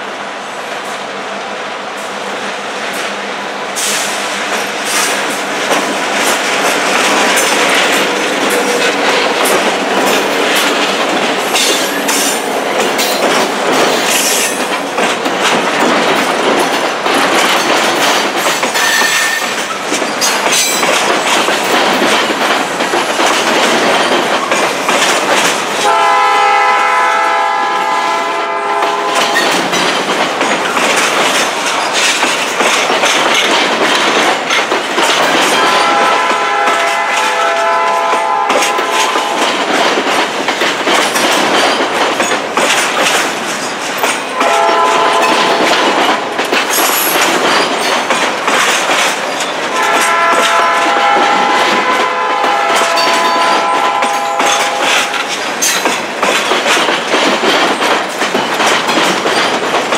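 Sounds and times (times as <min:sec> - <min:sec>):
train wheels clattering: 0:02.0 - 0:59.9
locomotive air horn: 0:25.8 - 0:29.4, 0:35.6 - 0:39.4, 0:44.3 - 0:45.6, 0:49.7 - 0:55.3.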